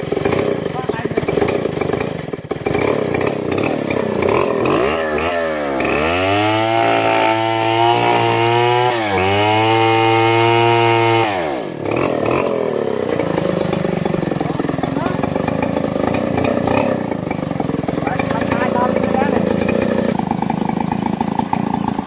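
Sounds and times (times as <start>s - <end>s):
chainsaw engine revving: 0.0s - 22.0s.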